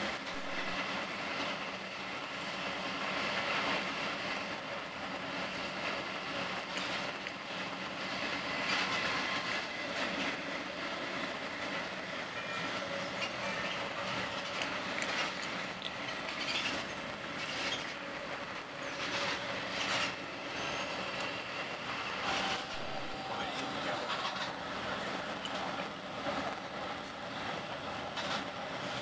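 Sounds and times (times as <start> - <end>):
train wheels rolling on rail: 0.0 - 29.0
wheels clacking over rail joints: 0.0 - 29.0
faint high wheel squeal: 12.2 - 14.7, 15.9 - 18.1, 18.8 - 24.6.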